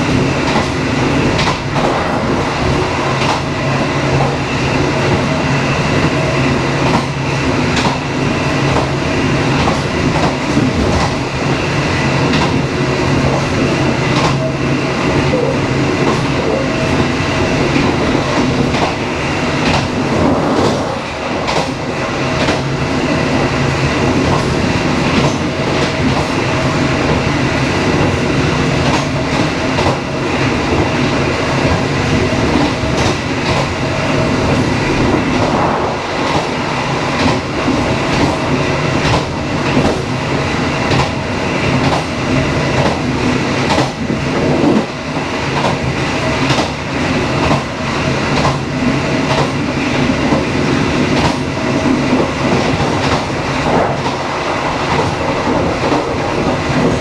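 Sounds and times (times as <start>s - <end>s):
clickety-clack of wheels on rail joints: 0.0s - 57.0s
train rumbling along track: 0.0s - 57.0s.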